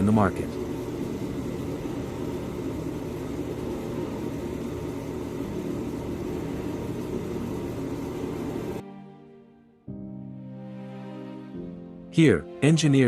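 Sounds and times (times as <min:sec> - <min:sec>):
factory machinery hum: 0:00.0 - 0:08.8.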